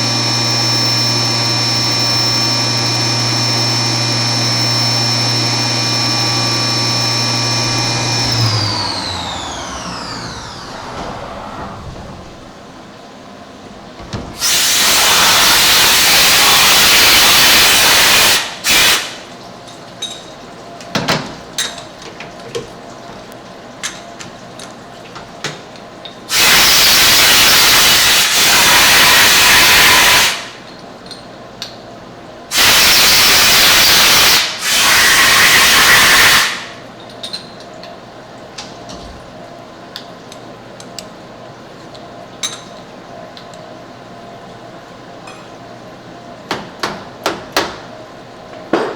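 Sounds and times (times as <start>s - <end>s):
compressed air blasting: 7.4s - 13.0s, 14.3s - 19.2s, 26.3s - 30.5s, 32.5s - 36.8s.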